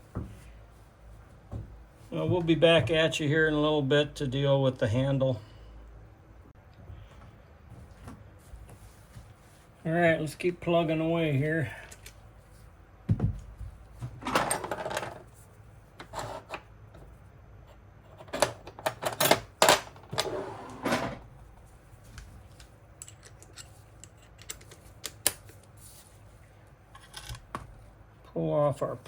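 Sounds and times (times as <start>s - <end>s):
dull knock: 13.1s - 13.5s.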